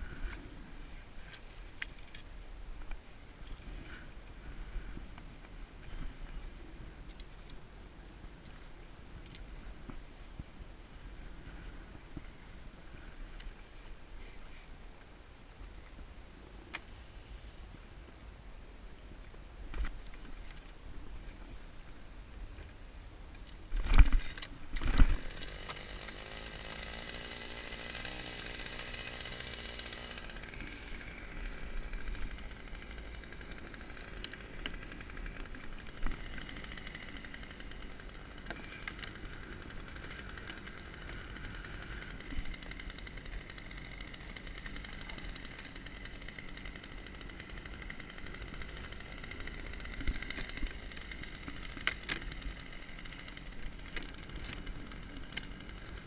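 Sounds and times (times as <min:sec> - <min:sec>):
small engine whining: 0:23.8 - 0:56.0.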